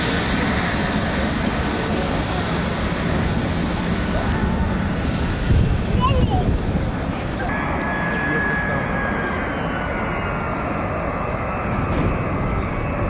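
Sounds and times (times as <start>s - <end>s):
jet engines running: 0.0s - 13.0s
thin high whine: 7.5s - 13.0s.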